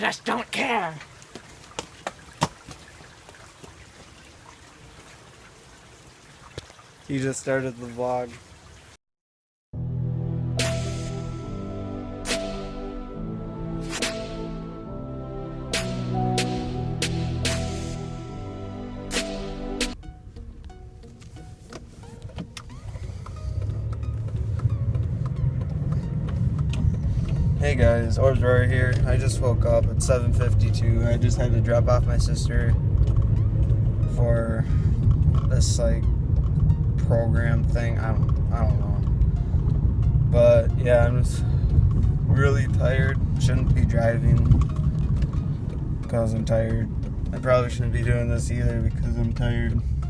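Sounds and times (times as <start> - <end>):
car engine and road rumble: 10.4 - 50.0
sharp taps: 15.7 - 18.0, 19.1 - 20.0.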